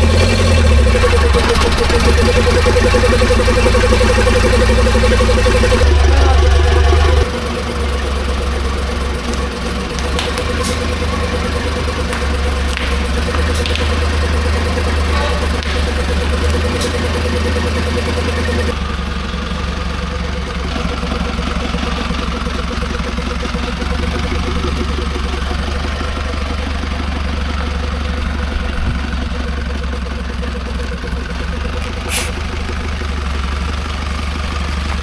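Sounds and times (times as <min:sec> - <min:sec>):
diesel engine idling: 0:00.0 - 0:35.0
brief sharp high sound: 0:32.1 - 0:32.4.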